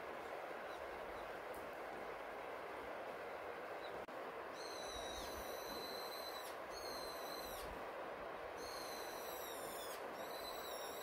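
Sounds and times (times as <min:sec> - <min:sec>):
rain hiss: 0:00.0 - 0:11.0
bird high-pitched calls: 0:03.8 - 0:07.8, 0:08.6 - 0:11.0.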